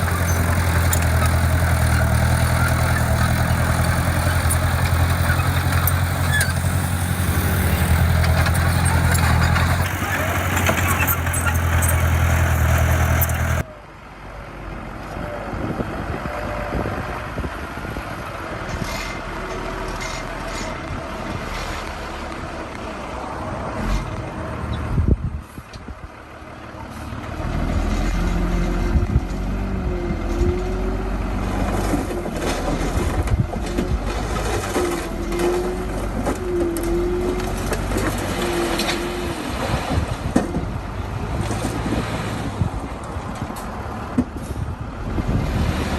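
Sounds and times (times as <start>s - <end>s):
diesel construction machinery: 0.0s - 45.9s
short squeals: 2.0s - 13.6s.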